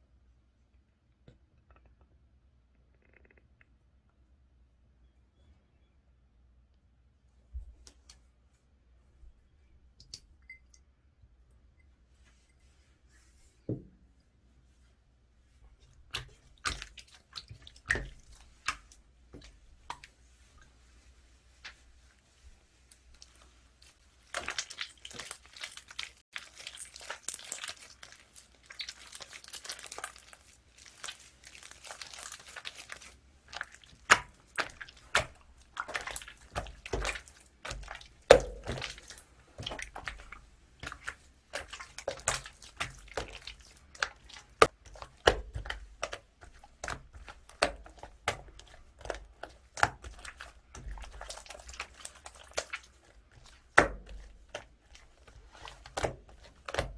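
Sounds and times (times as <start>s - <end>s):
slime crinkling: 16.1s - 56.9s.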